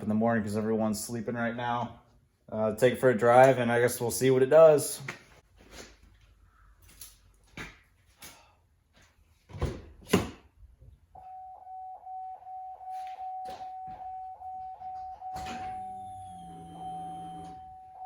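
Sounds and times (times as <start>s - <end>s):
pulsing electronic chime tone: 11.2s - 18.0s.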